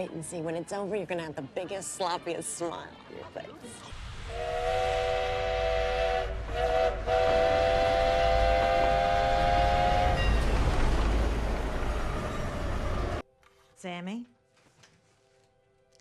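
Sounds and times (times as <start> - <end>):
train rumbling: 3.9 - 13.2
train whistle blasts: 4.3 - 10.3.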